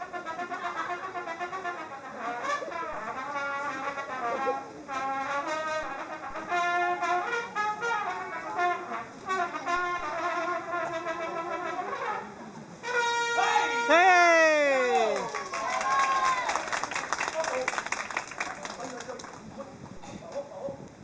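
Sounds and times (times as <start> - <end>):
brass instruments playing melody: 0.0 - 15.2.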